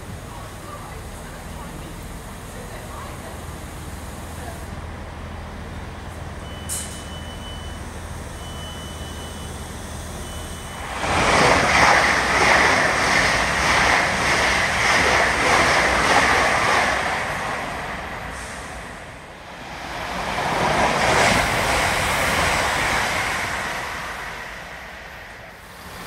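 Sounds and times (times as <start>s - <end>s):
passenger train rushing past: 9.8s - 26.0s.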